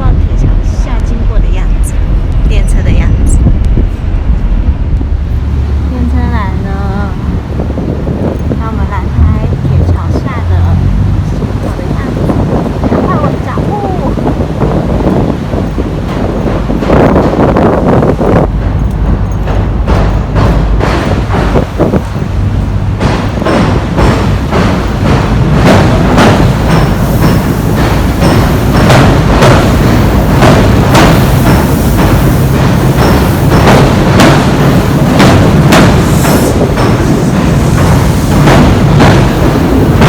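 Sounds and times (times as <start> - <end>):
train rumbling over steel bridge: 0.0 - 40.0
wheels clanking over rail joints: 0.0 - 40.0.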